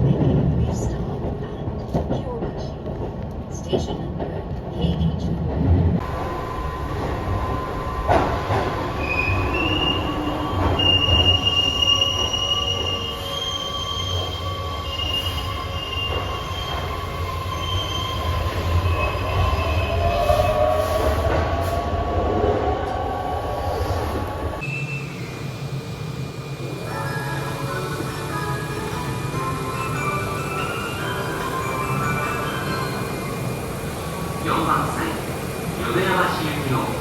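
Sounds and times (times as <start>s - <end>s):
electric train rumbling on rails: 0.0s - 37.0s
wheel squeal: 8.1s - 20.6s.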